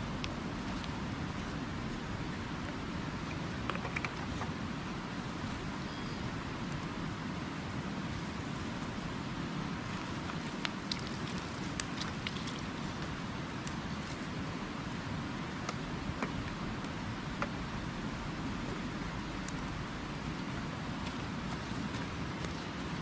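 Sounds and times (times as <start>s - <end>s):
river water flowing: 0.0s - 23.0s
campfire crackling: 6.7s - 23.0s.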